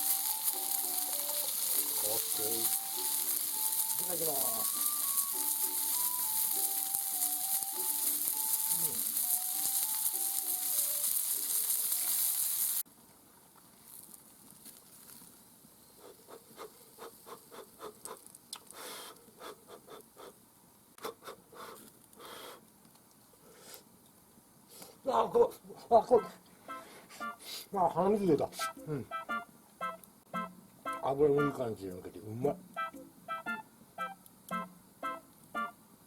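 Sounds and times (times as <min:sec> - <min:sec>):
plinking melody: 0:00.0 - 0:12.4, 0:28.6 - 0:31.6, 0:32.8 - 0:35.8
person chewing crunchy food: 0:00.0 - 0:12.8
chicken sizzling on grill: 0:00.0 - 0:12.9.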